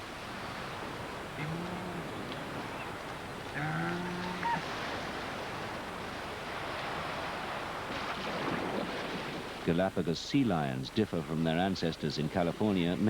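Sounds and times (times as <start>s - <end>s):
surf washing: 0.0s - 13.0s
seal calling: 1.4s - 2.3s, 3.5s - 4.8s.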